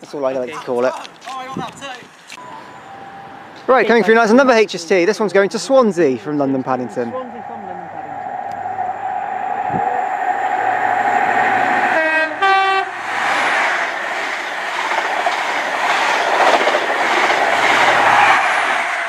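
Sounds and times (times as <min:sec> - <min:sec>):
train whine: 0:06.4 - 0:19.0
two-tone train horn: 0:11.9 - 0:13.0.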